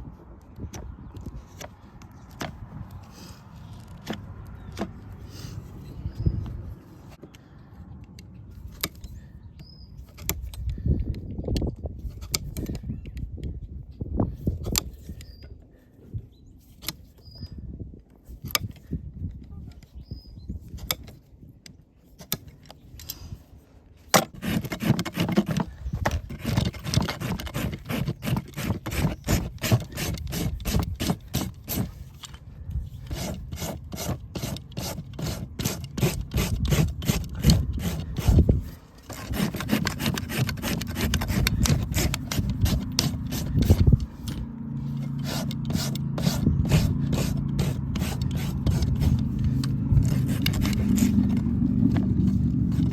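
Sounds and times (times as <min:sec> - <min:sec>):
rasp filing hoof: 0:24.1 - 0:52.9.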